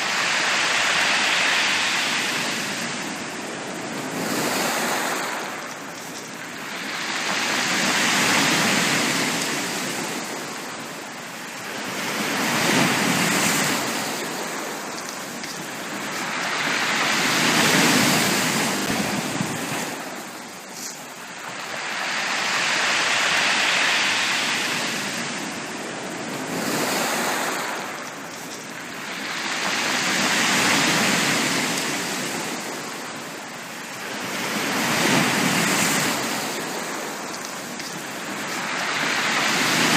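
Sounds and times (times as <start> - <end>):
sea waves washing up a beach: 0.0 - 39.9.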